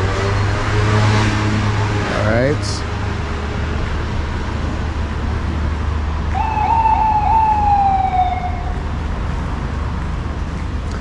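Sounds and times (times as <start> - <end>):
city street traffic rumble: 0.0 - 11.0
high squeal: 6.3 - 8.8.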